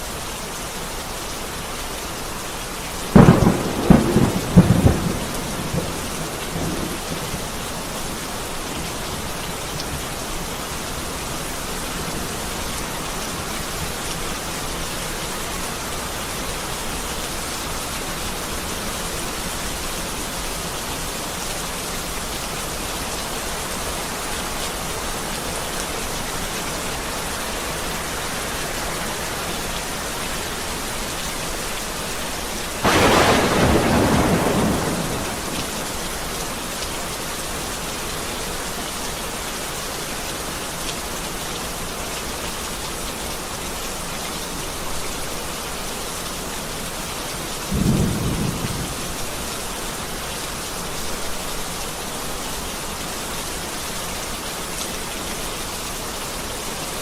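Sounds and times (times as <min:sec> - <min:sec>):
heavy rain: 0:00.0 - 0:57.0
thunderclap: 0:32.8 - 0:36.0, 0:47.7 - 0:49.1.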